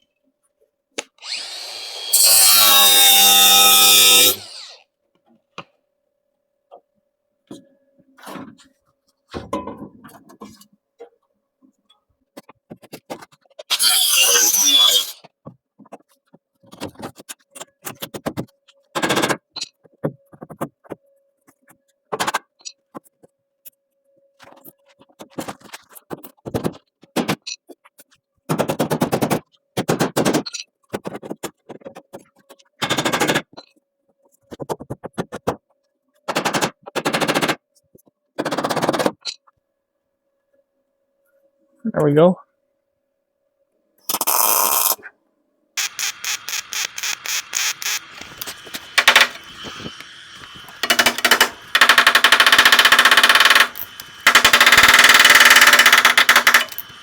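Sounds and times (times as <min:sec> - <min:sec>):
loud hiss: 0:45.8 - 0:57.0
metalworking crackling and clattering: 0:45.8 - 0:57.0.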